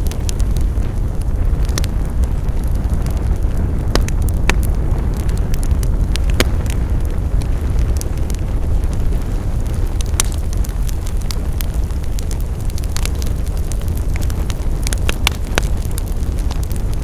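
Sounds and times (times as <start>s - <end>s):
fire pops and snaps: 0.0s - 17.0s
fire rumbling: 0.0s - 17.0s.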